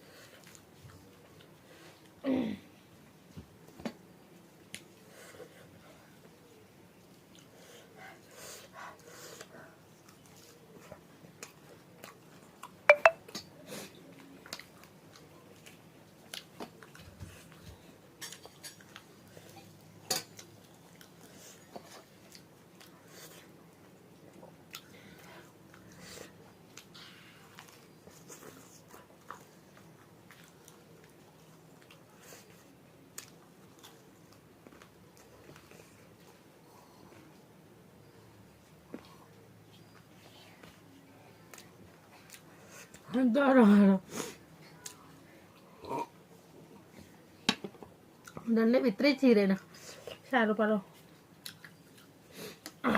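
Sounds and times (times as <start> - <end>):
close chewing: 0.0 - 2.2, 6.0 - 12.8, 13.9 - 37.2, 39.0 - 43.2, 44.6 - 45.8, 50.9 - 52.8.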